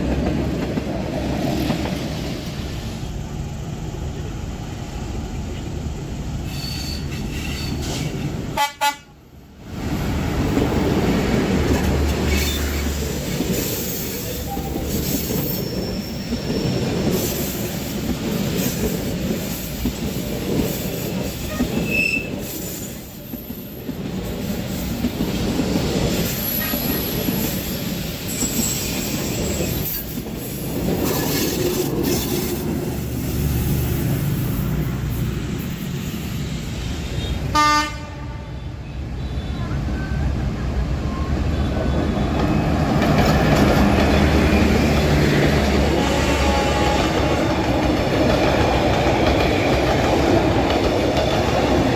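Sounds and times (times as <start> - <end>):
train wheels rumbling on rails: 0.0 - 51.9
high wheel squeals: 6.4 - 8.2, 13.7 - 17.6, 21.4 - 23.8, 26.1 - 32.6.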